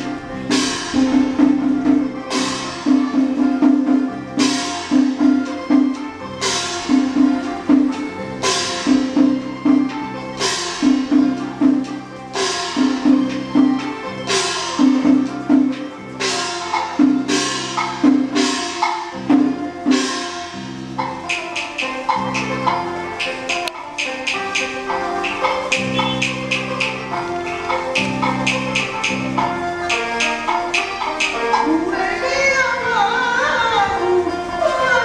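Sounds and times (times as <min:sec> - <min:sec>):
low melodic instrumental figure: 0:00.0 - 0:32.0
sharp cymbal-like strike: 0:19.9 - 0:31.6
wood block clacks: 0:21.0 - 0:31.7.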